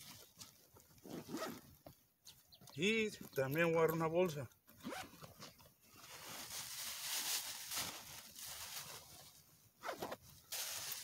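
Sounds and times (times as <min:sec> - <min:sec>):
plastic bag rustling and crinkling: 0:05.9 - 0:11.0.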